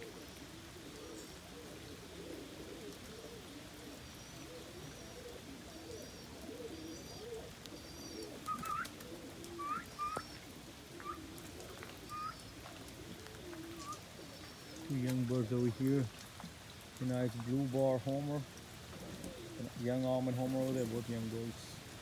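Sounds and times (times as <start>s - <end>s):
pigeons cooing: 0.0s - 22.0s
short rising bird calls: 4.1s - 14.9s.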